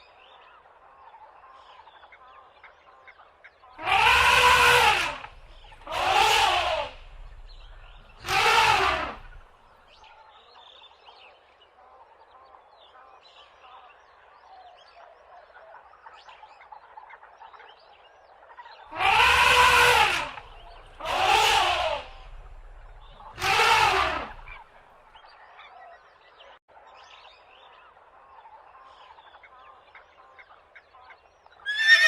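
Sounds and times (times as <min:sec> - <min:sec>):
animal calling: 0:03.8 - 0:09.6, 0:18.9 - 0:24.8, 0:31.7 - 0:32.0
faint chirps: 0:05.1 - 0:09.6.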